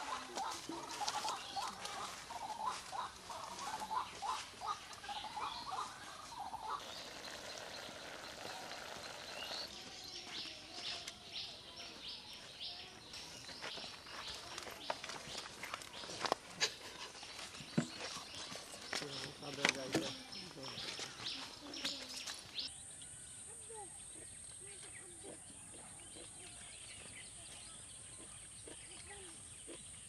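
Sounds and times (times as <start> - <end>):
high bird chirps: 0.9 - 16.3.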